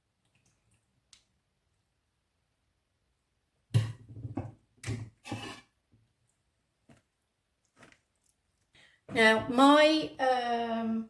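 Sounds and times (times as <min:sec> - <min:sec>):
kitchenware scraping: 0:05.2 - 0:05.7.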